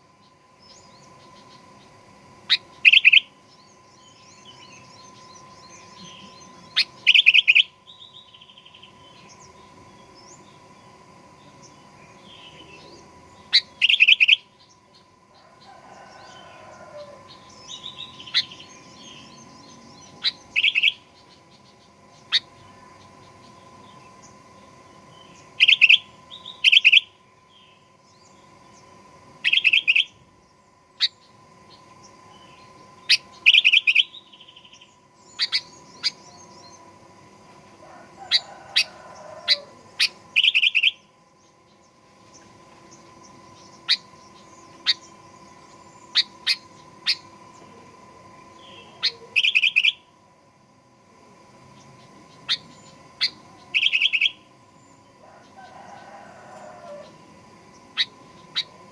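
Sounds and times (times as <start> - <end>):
faint steady hum: 0.0 - 58.9
bird calling chirpy notes: 0.6 - 3.4, 4.0 - 9.4, 12.2 - 14.7, 17.4 - 24.0, 25.0 - 27.8, 29.4 - 31.4, 32.3 - 37.0, 38.2 - 41.1, 43.3 - 50.2, 52.1 - 54.9, 57.8 - 58.9.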